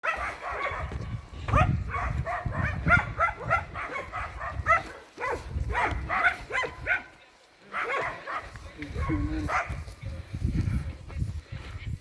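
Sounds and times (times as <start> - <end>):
dog barking: 0.0 - 7.1, 7.7 - 9.8.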